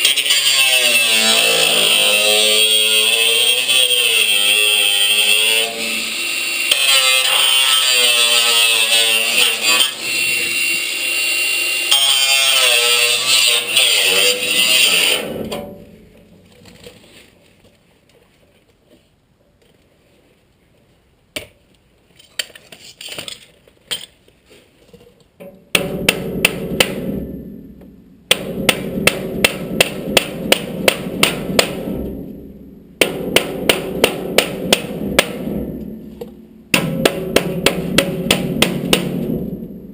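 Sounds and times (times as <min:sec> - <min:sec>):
power tool whining: 0:00.0 - 0:15.3
hammer beating sheet metal: 0:00.7 - 0:16.5, 0:25.4 - 0:39.9.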